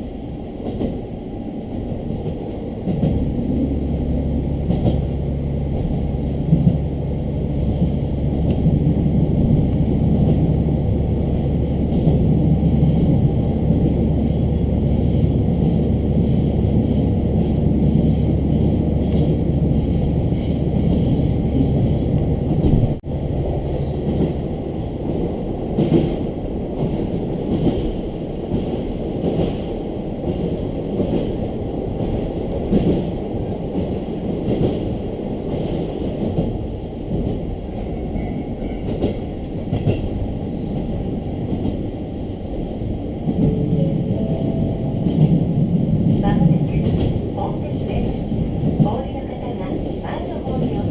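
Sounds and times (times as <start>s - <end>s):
diesel railcar engine drone: 0.0s - 29.2s
train wheel and rail noise: 0.0s - 50.9s.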